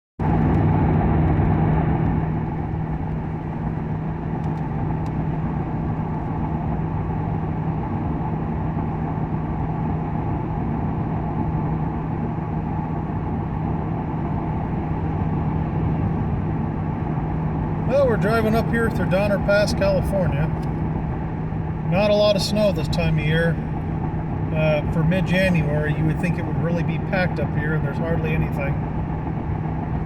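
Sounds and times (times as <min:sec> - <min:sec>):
car engine humming: 0:00.2 - 0:30.0.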